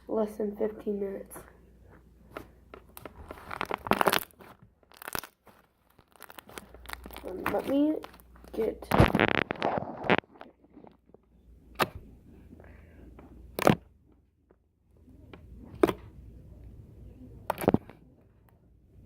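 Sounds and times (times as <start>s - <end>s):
slime popping: 3.0s - 10.3s.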